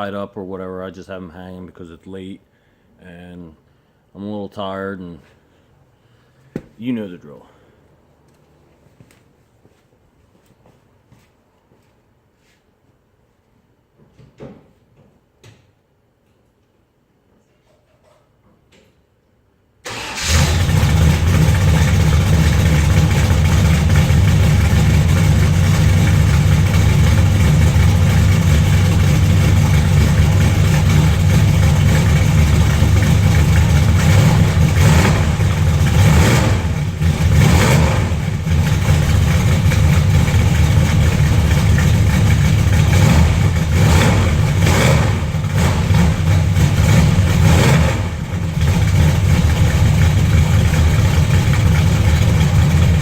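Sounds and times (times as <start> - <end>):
car engine idling: 19.9 - 53.0
engine throttle blips: 19.9 - 53.0.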